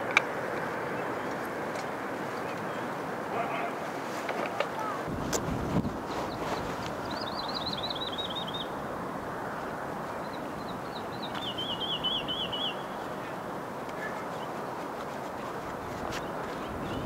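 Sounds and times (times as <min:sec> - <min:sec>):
steady background hiss: 0:00.0 - 0:17.0
songbird trilling: 0:06.2 - 0:08.8, 0:10.2 - 0:13.4.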